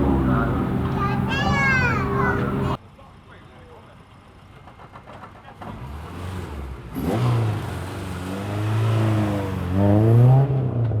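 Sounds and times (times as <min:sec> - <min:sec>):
rally car engine revving: 0:05.6 - 0:11.0.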